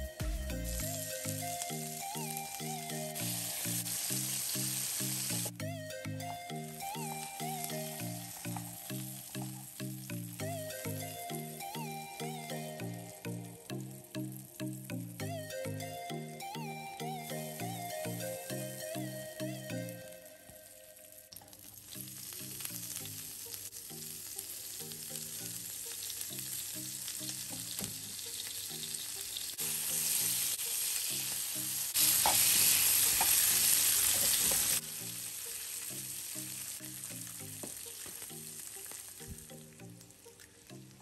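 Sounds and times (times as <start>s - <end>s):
spinach sizzling in oil: 0.9s - 5.6s, 7.0s - 11.0s, 20.6s - 39.3s.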